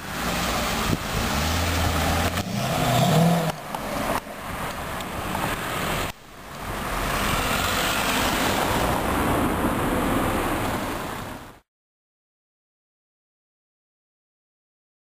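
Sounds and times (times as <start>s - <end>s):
car engine accelerating: 0.0s - 10.6s.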